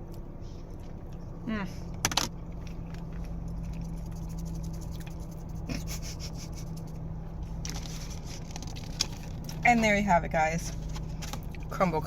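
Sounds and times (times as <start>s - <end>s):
low hum: 0.0s - 11.7s
chewing cookie mouth smacks: 2.5s - 5.3s.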